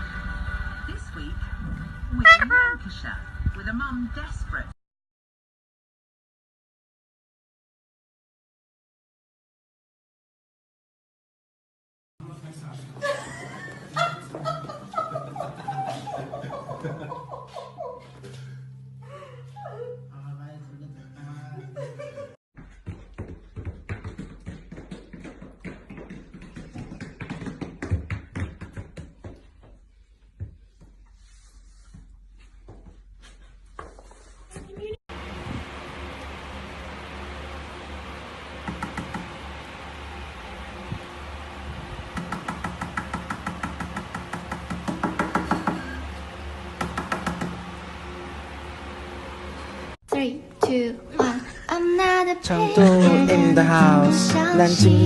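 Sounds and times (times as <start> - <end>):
rapid tapping and knocking: 22.8 - 29.8, 42.2 - 45.9, 46.8 - 47.6.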